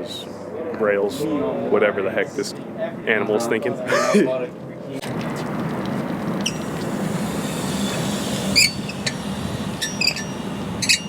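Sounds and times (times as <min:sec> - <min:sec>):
steady background noise: 0:00.0 - 0:11.0
high squeaks: 0:07.9 - 0:11.0.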